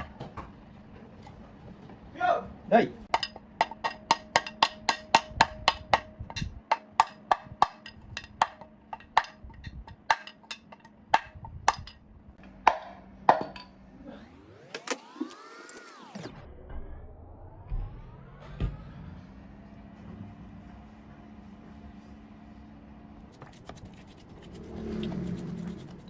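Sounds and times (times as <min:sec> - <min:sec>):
rising and falling tone: 0:13.8 - 0:20.6.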